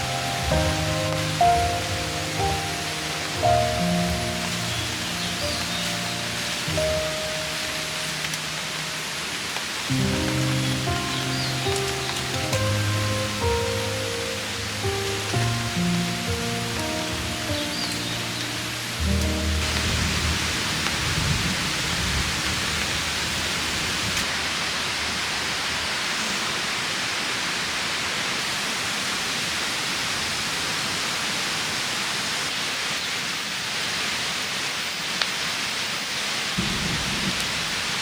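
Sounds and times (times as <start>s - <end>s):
steady rain falling: 0.0s - 38.0s
low rumble: 19.0s - 24.2s.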